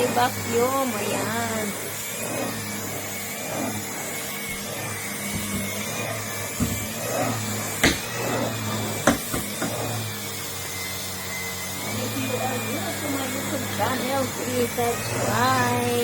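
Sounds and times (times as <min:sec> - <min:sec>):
vacuum cleaner running: 0:00.0 - 0:16.0
sharp knocks: 0:06.6 - 0:07.0, 0:07.8 - 0:08.1, 0:09.0 - 0:09.8.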